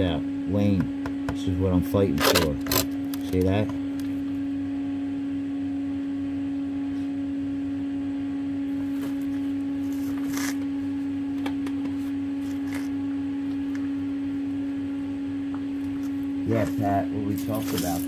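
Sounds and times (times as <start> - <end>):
steady machine hum: 0.0 - 18.0.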